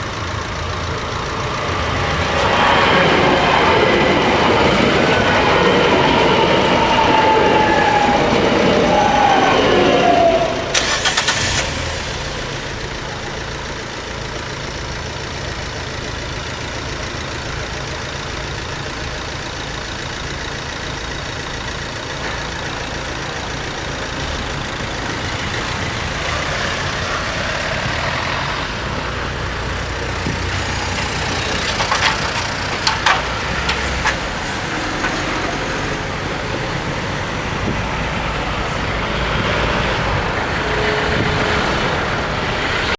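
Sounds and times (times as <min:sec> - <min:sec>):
vehicle engines running: 0:00.0 - 0:42.9
metallic clanks and squeaks: 0:30.8 - 0:35.6.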